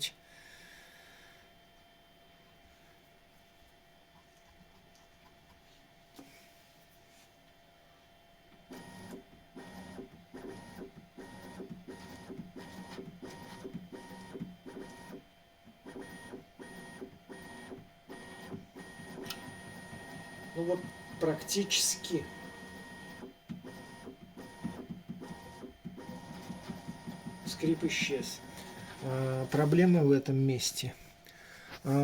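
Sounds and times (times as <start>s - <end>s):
whining bed motors: 8.5s - 29.8s.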